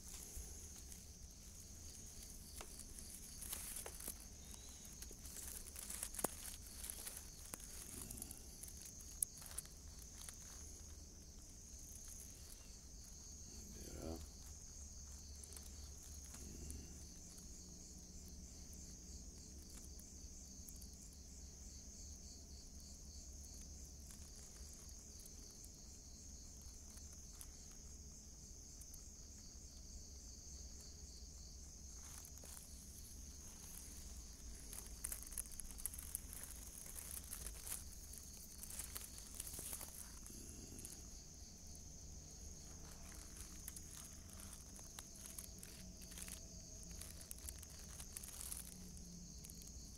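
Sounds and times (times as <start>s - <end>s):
rustling and scraping clicks: 0.0s - 17.2s, 31.8s - 49.8s
insects chirring: 0.0s - 49.9s.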